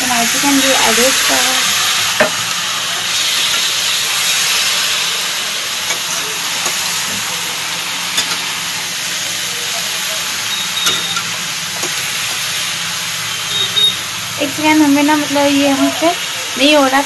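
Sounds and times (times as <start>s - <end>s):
chicken sizzling in oil: 0.0s - 17.0s
spatula clinking against pan: 8.2s - 8.5s, 10.8s - 12.0s.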